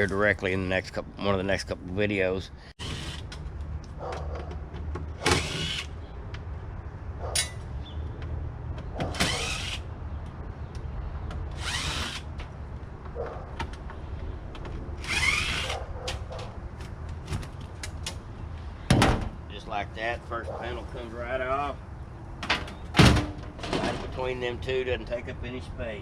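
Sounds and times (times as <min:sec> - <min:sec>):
power drill whining: 0:11.6 - 0:12.3, 0:15.0 - 0:15.8.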